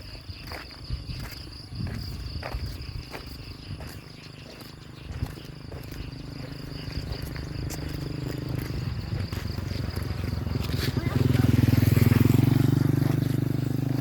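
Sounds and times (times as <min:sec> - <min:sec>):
crickets chirring: 0:00.0 - 0:14.0
engine low hum: 0:03.5 - 0:14.0.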